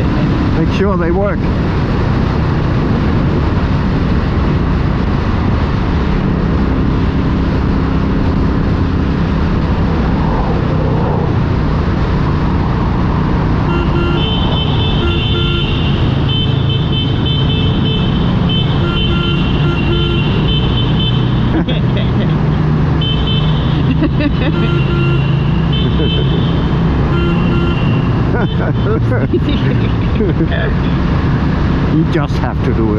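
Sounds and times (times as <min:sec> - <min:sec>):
motorcycle engines running: 0:00.0 - 0:32.9
road and wind noise: 0:00.0 - 0:32.9
motorcycle horns honking: 0:13.6 - 0:22.2, 0:23.0 - 0:29.6.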